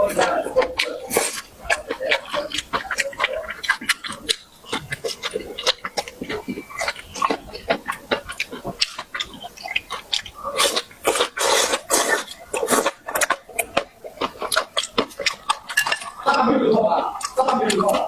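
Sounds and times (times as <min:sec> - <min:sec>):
wet chewing and lip-smacking: 0:00.0 - 0:18.0.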